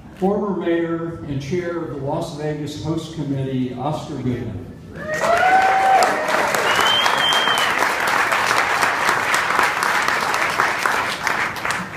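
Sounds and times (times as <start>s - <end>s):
audience applauding: 5.1s - 11.9s
high whistle: 6.6s - 7.9s.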